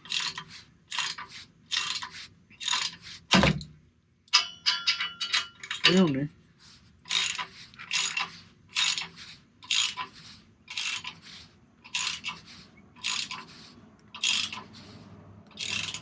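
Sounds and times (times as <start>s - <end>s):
socket ratchet clicking: 0.0s - 3.0s, 7.1s - 10.1s, 10.7s - 11.2s, 11.9s - 13.5s, 14.1s - 14.7s, 15.5s - 16.0s.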